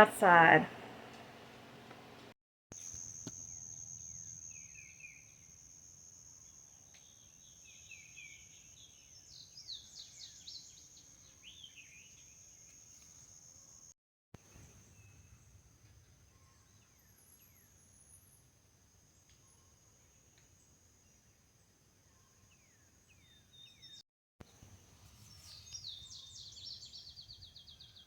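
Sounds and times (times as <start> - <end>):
songbirds chirping: 6.4 - 13.7, 19.1 - 28.0.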